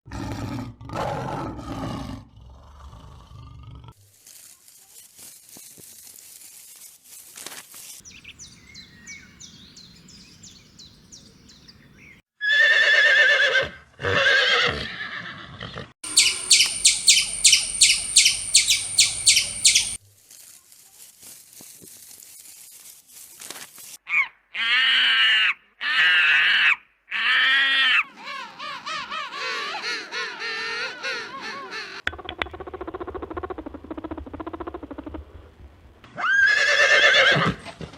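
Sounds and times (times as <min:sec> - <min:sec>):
animal calls with wavering pitch: 0:16.0 - 0:20.0
rapid high chirps: 0:16.0 - 0:20.0.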